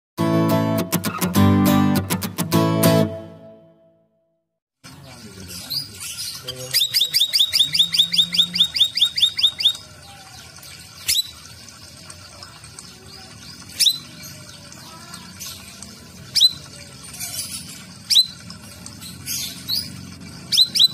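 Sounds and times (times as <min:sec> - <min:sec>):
sharp high bird calls: 0:05.5 - 0:11.5, 0:13.0 - 0:20.9
bird singing high notes: 0:05.6 - 0:11.5.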